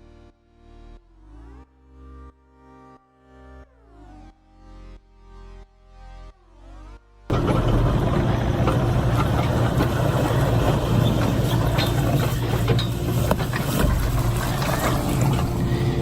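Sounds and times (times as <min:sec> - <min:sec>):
sharp clicks and knocks: 0:07.3 - 0:15.7
machinery humming: 0:07.3 - 0:16.0.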